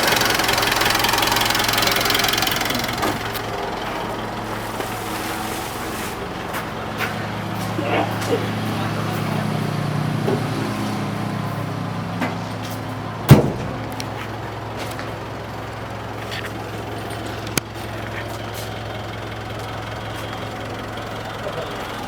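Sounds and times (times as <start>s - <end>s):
diesel engine idling: 0.0s - 22.0s
loud thump: 13.3s - 14.2s.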